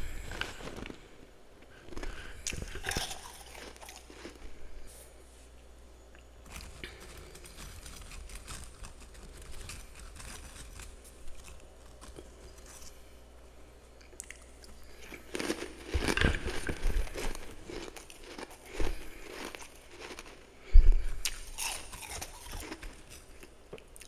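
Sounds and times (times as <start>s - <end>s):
chewing crunchy frost: 0.0s - 5.0s, 6.2s - 24.0s.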